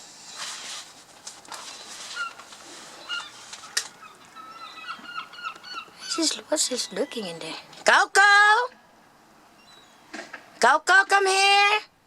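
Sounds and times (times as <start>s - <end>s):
seagull chicks begging calls: 2.2s - 7.4s.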